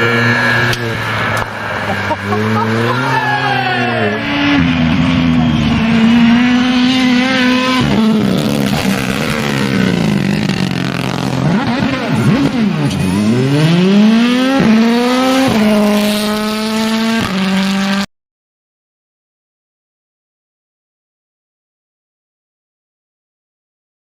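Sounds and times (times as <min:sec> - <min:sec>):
rally car engine at high revs: 0:00.0 - 0:18.1.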